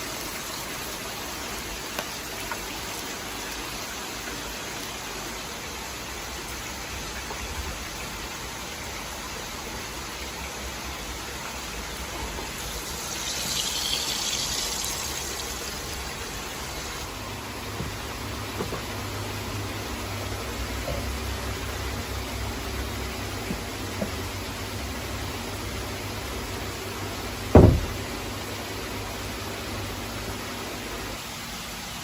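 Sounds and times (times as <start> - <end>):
beef sizzling in a pan: 12.5 - 17.1.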